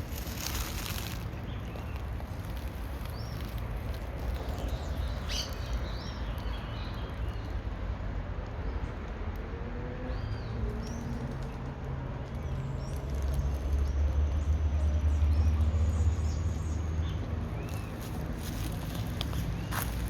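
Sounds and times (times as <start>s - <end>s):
bird chirps: 4.6s - 7.1s.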